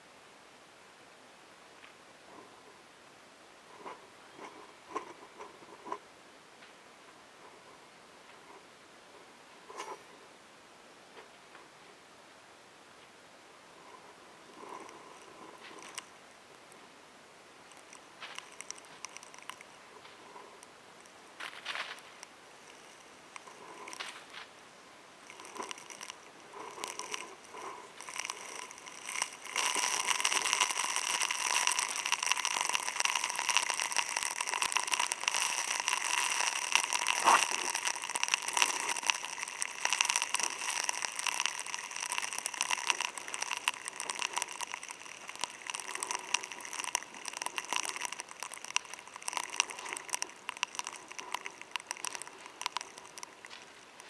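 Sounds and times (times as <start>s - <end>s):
heavy rain on hard surface: 15.2s - 54.0s.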